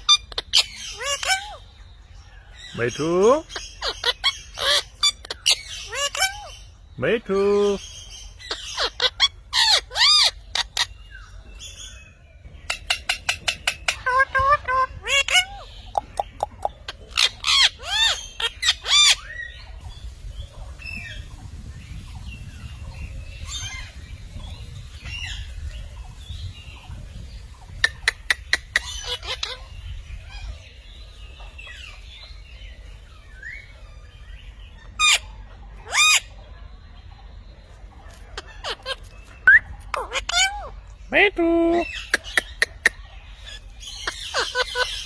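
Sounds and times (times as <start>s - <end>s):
parrot squawking: 0.0s - 1.7s, 2.8s - 6.7s, 7.4s - 10.9s, 12.7s - 19.4s, 27.8s - 30.5s, 34.9s - 36.3s, 38.3s - 40.8s, 41.6s - 45.0s.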